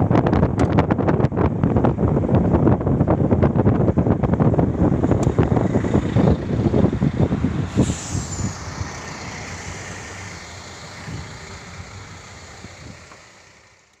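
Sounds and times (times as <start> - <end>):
vehicle engine rumbling: 0.0 - 14.0
sharp falling hiss: 7.7 - 13.6.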